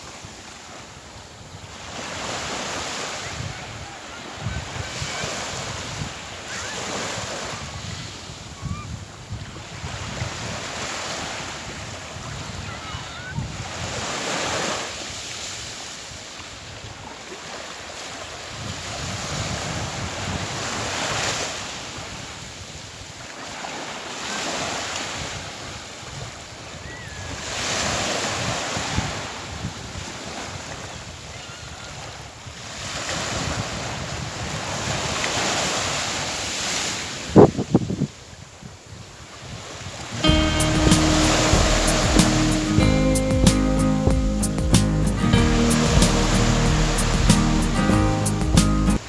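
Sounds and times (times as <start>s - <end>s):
sea waves washing ashore: 0.0s - 49.0s
wind buffeting microphone: 11.6s - 14.1s, 18.5s - 21.4s, 37.2s - 42.2s.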